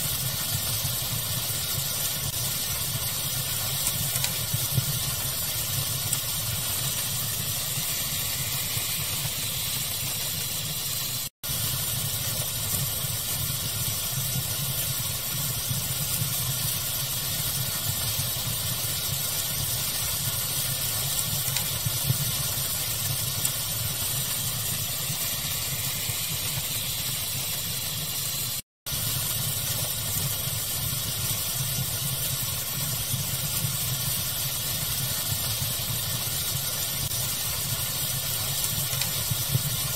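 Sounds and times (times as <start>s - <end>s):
fire crackling and hissing: 0.0s - 39.9s
small pops of fire: 0.2s - 7.2s, 36.0s - 39.9s.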